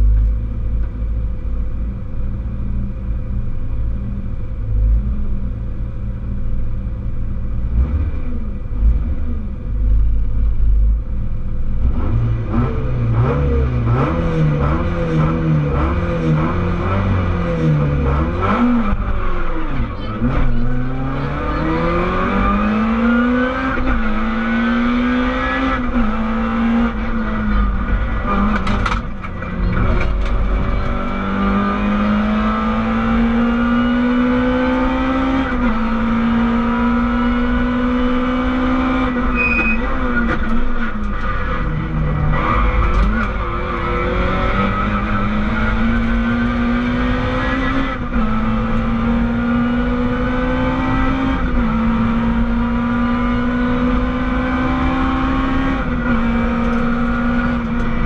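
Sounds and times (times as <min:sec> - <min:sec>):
car engine revving through gears: 0:07.6 - 0:10.1, 0:11.7 - 0:58.0.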